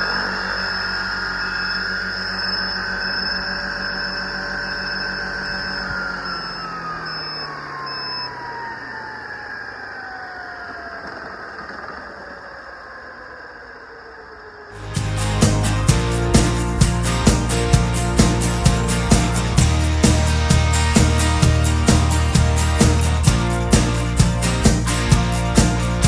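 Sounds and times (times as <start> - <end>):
model helicopter rotor whining: 0.0 - 14.5.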